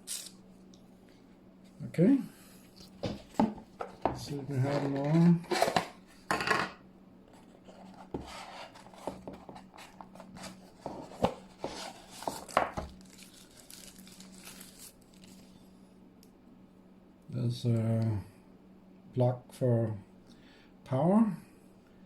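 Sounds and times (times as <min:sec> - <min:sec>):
faint steady hum: 0:00.0 - 0:22.0
packaging rustle: 0:07.6 - 0:15.6.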